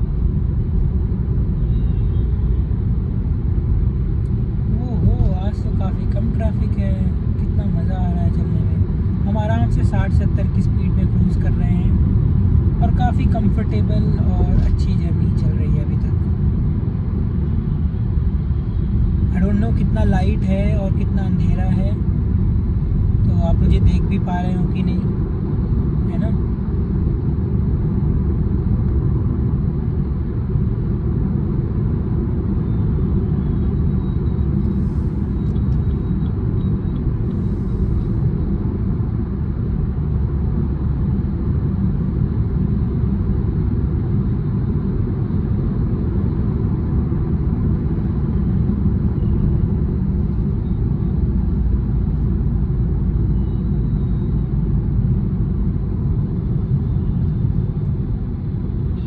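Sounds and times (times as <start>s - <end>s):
car engine hum: 0.0s - 59.0s
road and tyre rumble: 0.0s - 59.0s.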